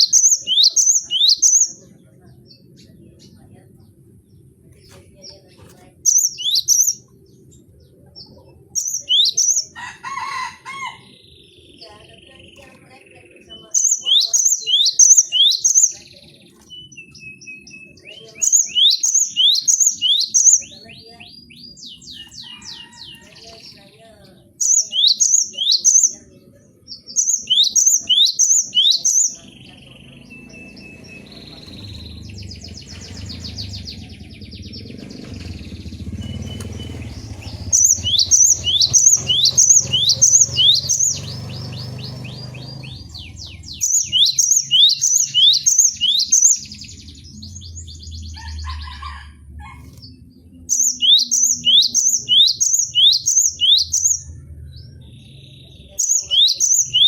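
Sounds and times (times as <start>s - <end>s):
bird singing high sharp notes: 6.0s - 7.2s, 13.5s - 22.8s, 24.6s - 26.1s, 26.9s - 48.1s, 50.7s - 54.4s
quiet bird chirps: 11.0s - 57.0s.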